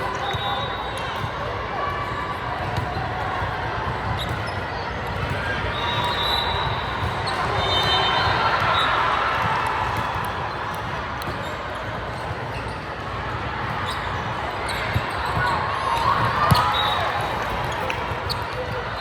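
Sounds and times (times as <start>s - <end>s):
sneaker squeaks: 0.0s - 19.0s
spectators talking: 0.0s - 19.0s
basketball bouncing on hardwood: 16.3s - 16.7s.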